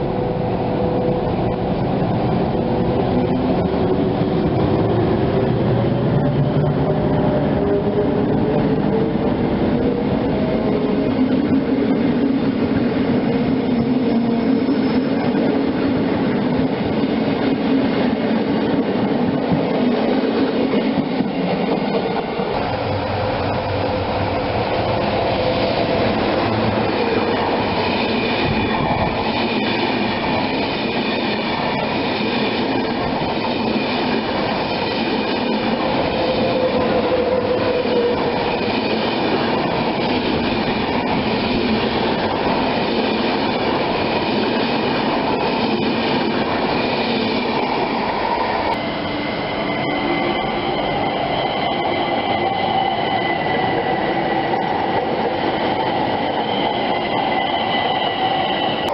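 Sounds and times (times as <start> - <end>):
train wheels rumbling on rails: 0.0 - 58.9.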